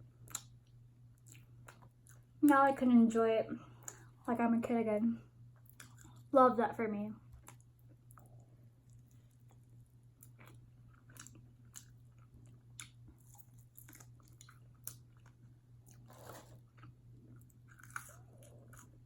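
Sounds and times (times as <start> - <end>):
close-up chewing and crunching: 0.0 - 2.4, 5.5 - 6.3, 7.3 - 19.0.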